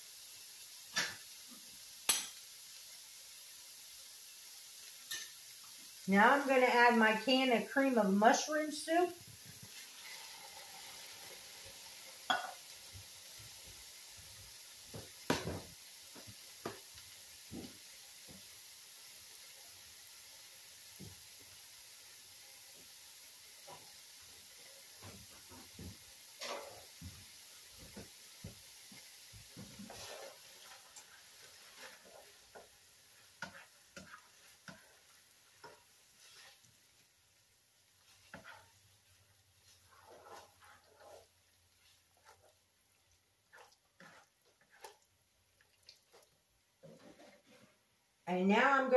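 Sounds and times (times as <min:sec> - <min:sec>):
faint pan sizzle: 0:00.0 - 0:48.9
spoon scraping a skillet: 0:04.8 - 0:13.6, 0:23.5 - 0:37.1, 0:37.8 - 0:47.9.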